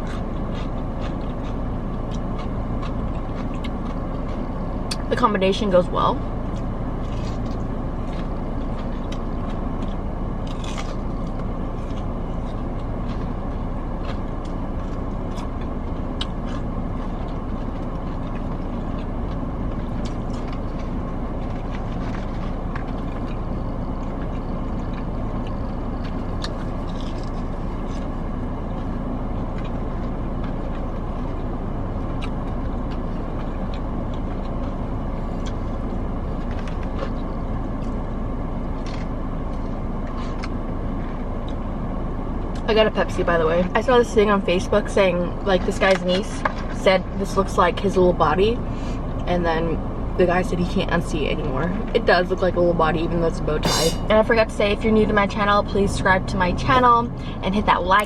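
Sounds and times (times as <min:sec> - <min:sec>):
crunching on fried chicken: 0:00.0 - 0:05.1, 0:06.2 - 0:42.7
steady low rumble: 0:00.0 - 0:45.8, 0:46.9 - 0:58.0.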